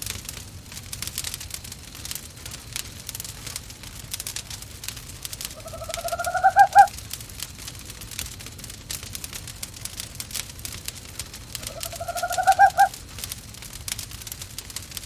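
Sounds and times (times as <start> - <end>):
fire crackling in a fireplace: 0.0 - 15.0
owl calling: 5.5 - 6.9, 11.6 - 13.0.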